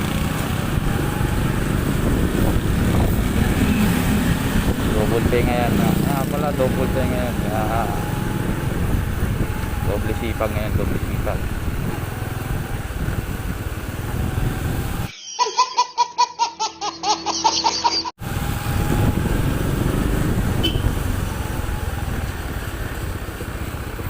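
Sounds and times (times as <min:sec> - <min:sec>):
motorcycle engine rumble: 0:00.0 - 0:15.1, 0:18.2 - 0:24.0
wind on microphone: 0:00.4 - 0:05.9, 0:08.0 - 0:15.1, 0:18.2 - 0:22.6
laughing sound effect: 0:15.1 - 0:18.1.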